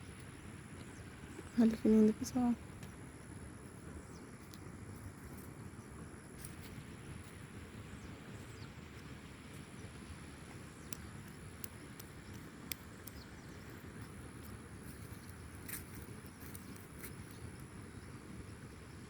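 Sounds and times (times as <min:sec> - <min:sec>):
low steady rumble: 0:00.0 - 0:19.0
faint ticks: 0:04.4 - 0:04.7, 0:10.4 - 0:17.8.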